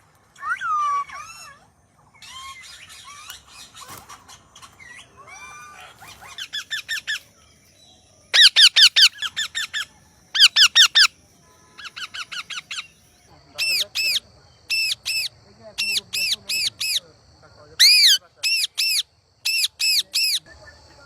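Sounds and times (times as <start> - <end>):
parrot screeching calls: 0.4 - 4.1, 4.8 - 7.2, 8.3 - 11.1, 11.8 - 13.0, 17.8 - 20.4
parrot chattering and whistling: 8.3 - 11.1, 17.8 - 20.5.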